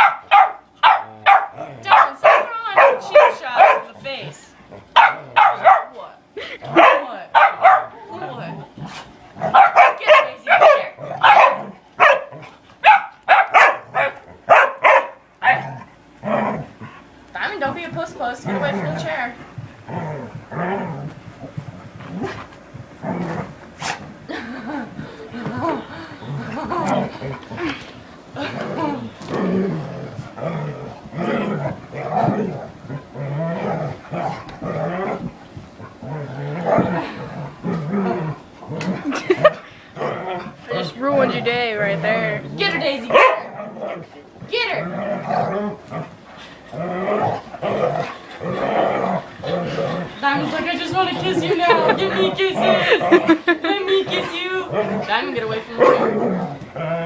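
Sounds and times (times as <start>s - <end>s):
puppy barking: 0.0s - 4.0s, 5.0s - 6.0s, 6.7s - 8.0s, 9.4s - 15.7s, 43.1s - 43.5s
puppies play-growling: 0.0s - 57.0s.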